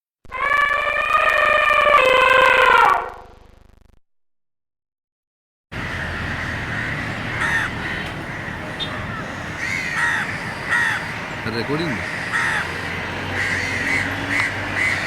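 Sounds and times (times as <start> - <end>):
outdoor background noise: 5.7 - 15.0
crow cawing: 5.8 - 15.0.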